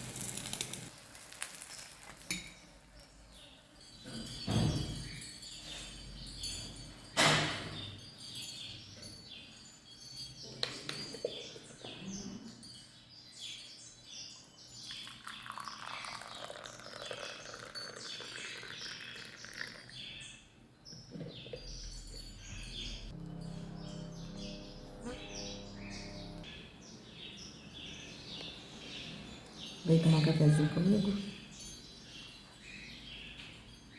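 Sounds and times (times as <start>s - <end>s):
small birds chirping: 7.7s - 33.9s.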